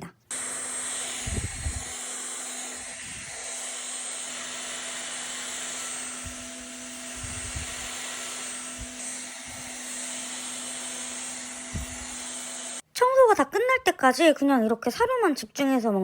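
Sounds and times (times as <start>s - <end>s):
vacuum cleaner running: 0.3s - 12.8s.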